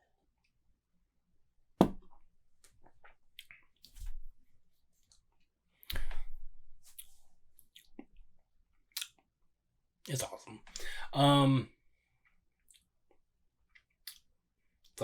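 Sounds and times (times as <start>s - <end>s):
sharp knock: 1.8s - 2.0s.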